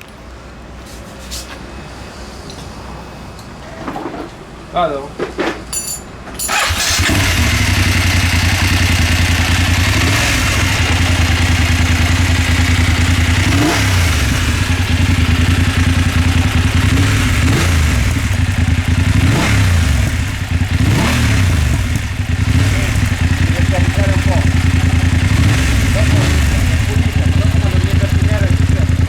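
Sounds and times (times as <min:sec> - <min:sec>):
motorcycle engine starting and idling: 0:06.4 - 0:29.0.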